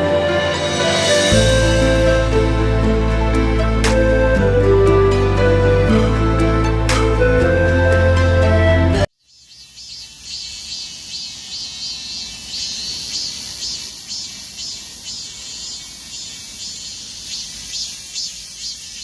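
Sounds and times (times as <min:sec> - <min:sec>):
insects chirping chorus: 0:09.2 - 0:19.0.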